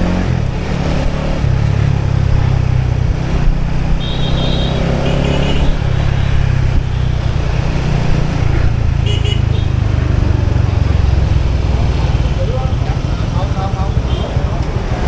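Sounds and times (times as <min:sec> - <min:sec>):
motorbike engine running: 0:00.0 - 0:15.0
traffic noise: 0:00.0 - 0:15.0.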